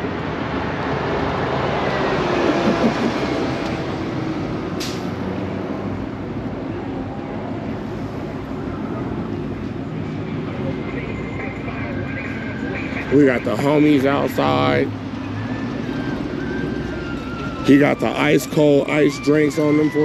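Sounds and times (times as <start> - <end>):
vehicle driving past: 0.0 - 10.7.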